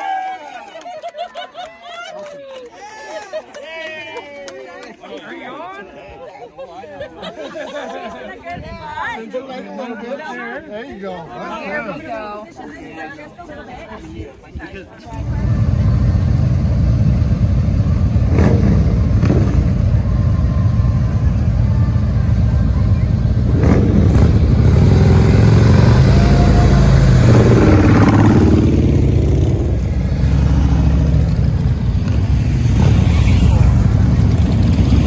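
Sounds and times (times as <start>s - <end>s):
motorcycle engines revving: 15.1s - 35.0s.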